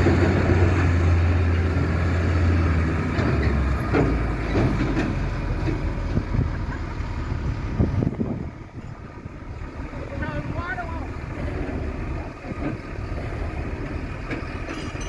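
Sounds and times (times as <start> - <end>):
diesel truck engine running: 0.0 - 15.0
knocks and clatter: 3.0 - 6.3, 13.8 - 15.0.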